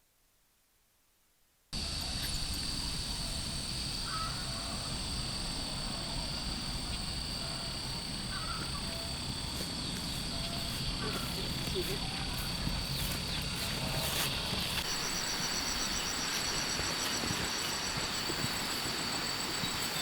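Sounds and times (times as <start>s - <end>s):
bird calls: 1.8s - 20.0s
insects chirring: 1.8s - 20.0s.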